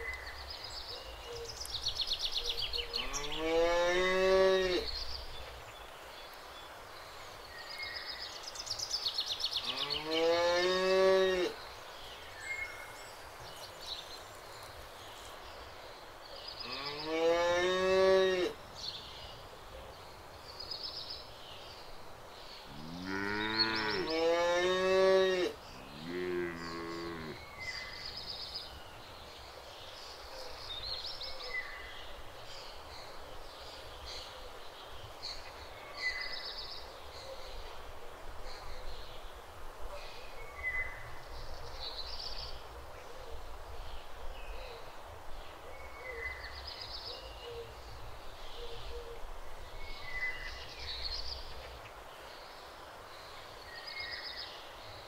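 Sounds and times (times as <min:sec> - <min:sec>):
cows mooing: 0:22.7 - 0:27.4.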